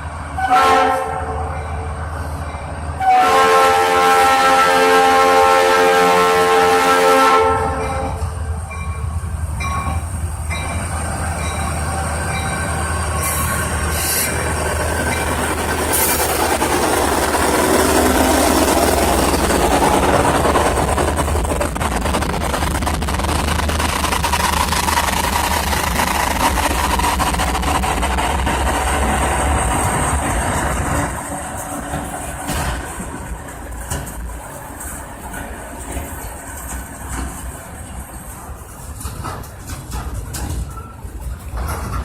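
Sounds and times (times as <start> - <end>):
locomotive rumble: 0.0 - 42.0
train cars clattering: 0.0 - 42.0
locomotive air horn: 0.4 - 1.6, 3.0 - 8.2.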